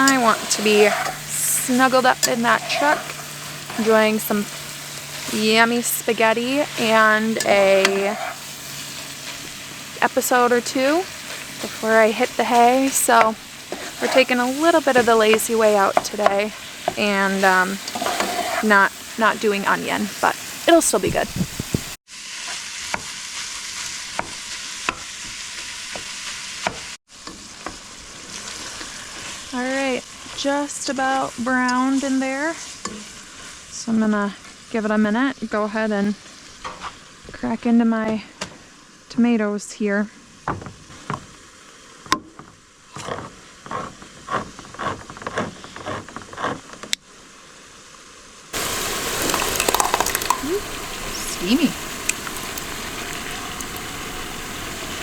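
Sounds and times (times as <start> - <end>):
meat sizzling in a pan: 0.0 - 37.6, 47.1 - 55.0
utensil clicking against pan: 49.2 - 50.5.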